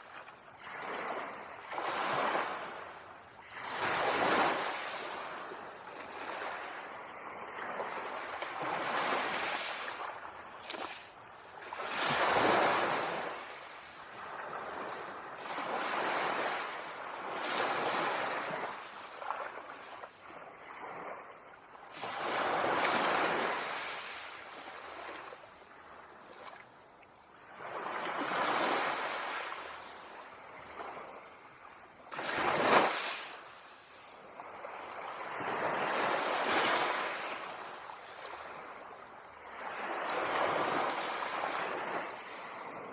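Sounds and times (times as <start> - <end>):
ocean waves breaking: 0.6 - 20.0.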